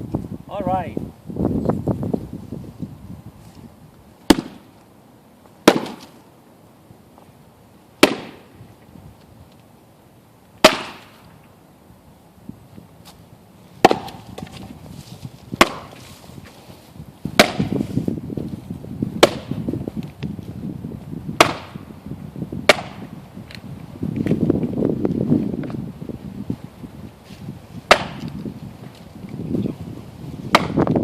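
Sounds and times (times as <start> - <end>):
axe chopping wood: 4.3 - 4.7, 5.6 - 6.2, 8.0 - 8.5, 10.6 - 11.2, 13.8 - 14.7, 15.5 - 16.0, 17.3 - 17.8, 19.2 - 19.6, 21.4 - 21.8, 22.6 - 23.1, 27.9 - 28.4, 30.5 - 31.0.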